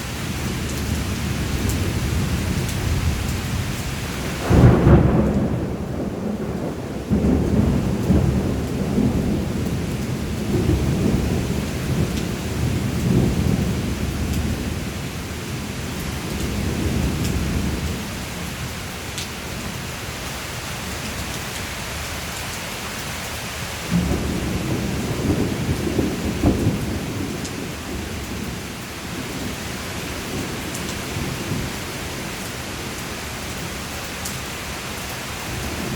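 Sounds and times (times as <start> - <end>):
steady rain: 0.0 - 35.9
thunder rumbling: 0.9 - 15.7, 23.9 - 32.3.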